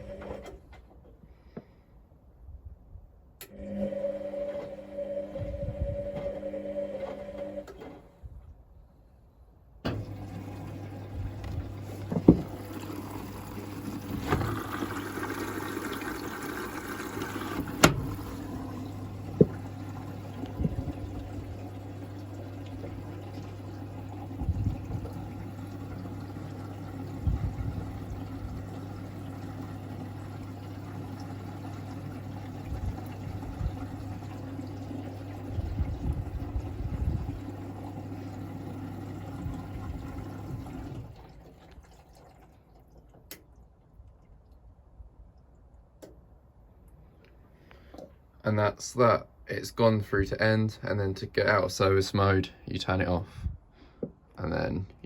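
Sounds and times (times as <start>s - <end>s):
washing machine hum: 0.0s - 0.8s, 3.4s - 8.4s, 9.8s - 44.5s
water running into machine: 3.4s - 7.6s, 9.8s - 43.7s.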